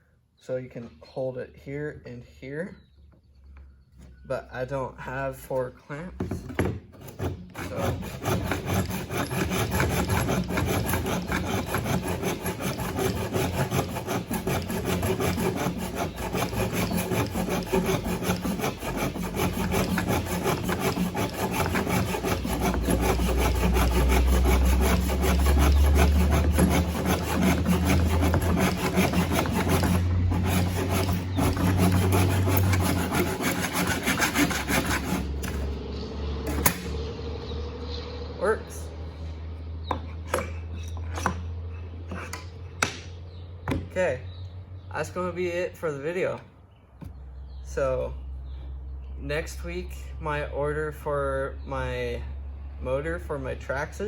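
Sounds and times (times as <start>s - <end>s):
hand saw cutting wood: 6.9s - 35.8s, 36.5s - 37.0s, 40.0s - 43.8s.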